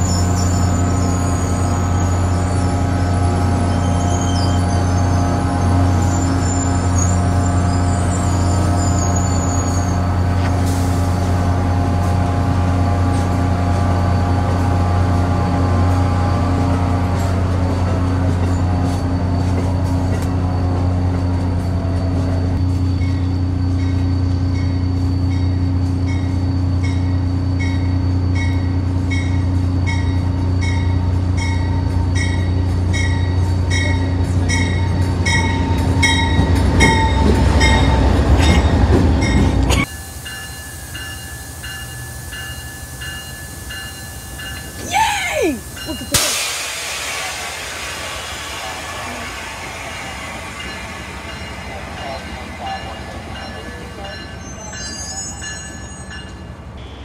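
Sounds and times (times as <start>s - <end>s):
train rolling with whine: 0.0s - 56.9s
locomotive bell ringing: 22.2s - 45.0s, 45.6s - 46.4s, 50.0s - 56.9s.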